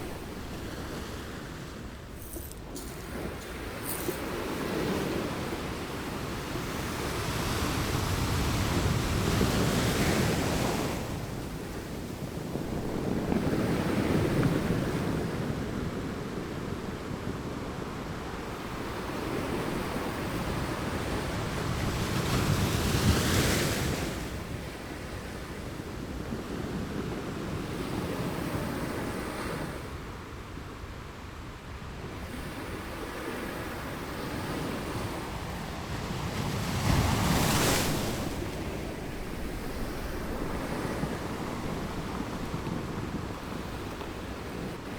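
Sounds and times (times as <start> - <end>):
ocean waves breaking: 0.0 - 16.2, 32.1 - 44.9
wind buffeting microphone: 25.9 - 44.9.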